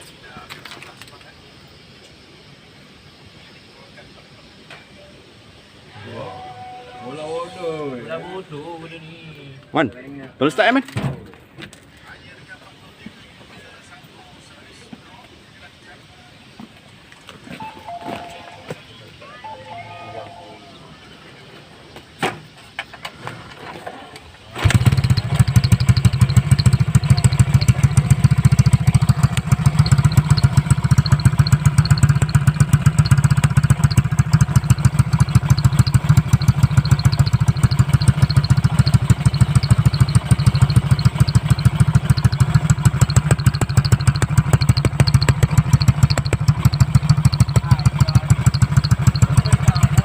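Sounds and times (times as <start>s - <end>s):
motorcycle engine idling: 24.5s - 50.0s
starter clicks: 24.6s - 50.0s.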